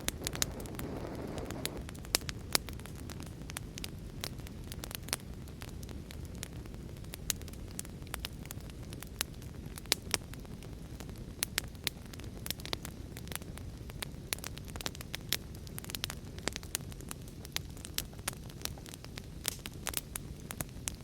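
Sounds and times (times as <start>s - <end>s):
heavy rain rumble: 0.0s - 1.9s
wood fire crackling and popping: 0.0s - 21.0s.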